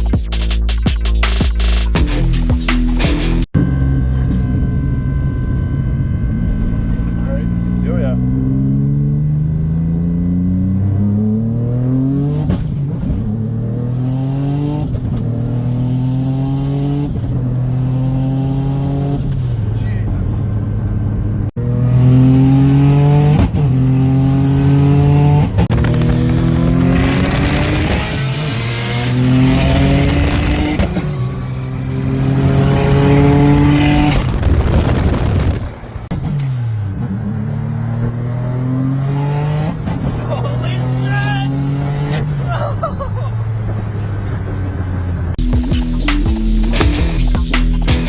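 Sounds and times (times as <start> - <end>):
car engine accelerating hard: 2.1 - 47.2.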